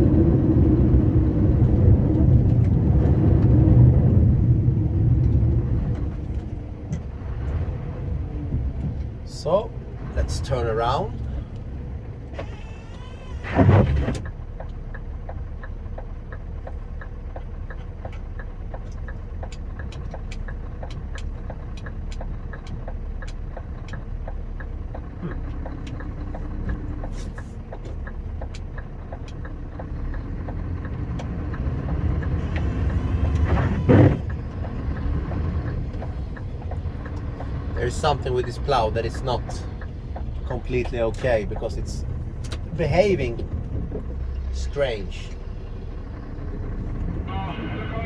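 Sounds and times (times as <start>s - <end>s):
diesel truck engine running: 0.0s - 48.0s.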